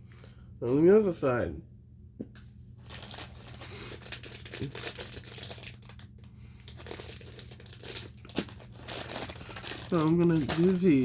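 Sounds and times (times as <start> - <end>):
faint steady hum: 0.0 - 11.0
packaging crinkling: 2.8 - 11.0.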